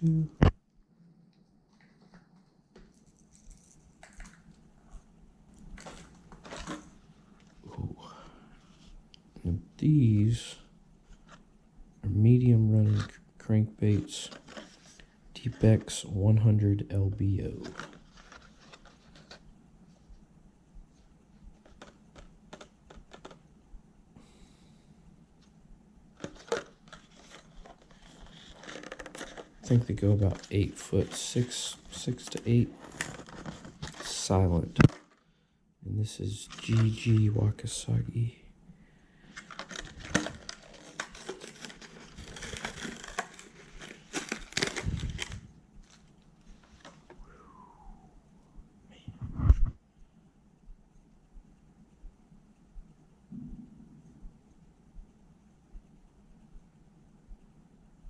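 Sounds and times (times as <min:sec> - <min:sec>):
plastic packaging crinkling: 0:02.8 - 0:04.6, 0:05.5 - 0:07.6, 0:13.9 - 0:16.0, 0:17.5 - 0:19.5, 0:26.2 - 0:35.2, 0:39.2 - 0:47.2.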